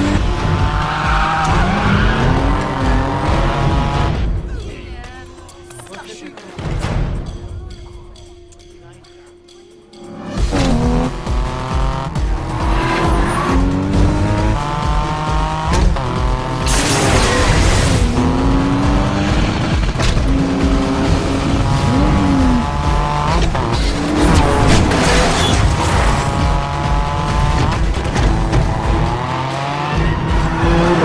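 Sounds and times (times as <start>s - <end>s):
tire screech: 0.0s - 4.0s, 23.3s - 26.6s
race car engines accelerating: 0.0s - 4.4s, 10.1s - 31.0s
film score: 0.0s - 31.0s.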